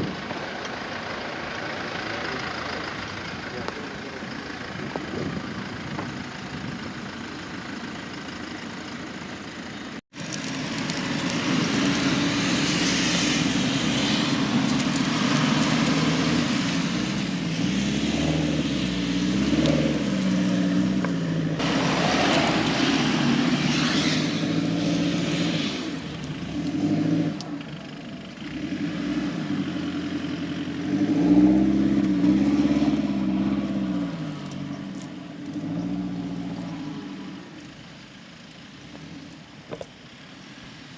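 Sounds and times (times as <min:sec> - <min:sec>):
rushing noise: 0:10.2 - 0:20.6, 0:21.4 - 0:26.6
off-road vehicle engine revving: 0:10.3 - 0:37.8.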